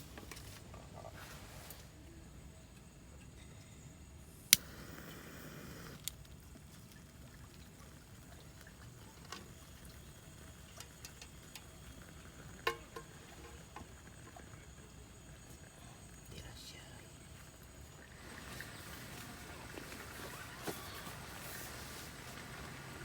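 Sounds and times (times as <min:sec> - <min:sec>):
pouring hiss: 0:03.6 - 0:23.0
light ticks: 0:04.5 - 0:07.0
cookware clicking: 0:12.6 - 0:13.7.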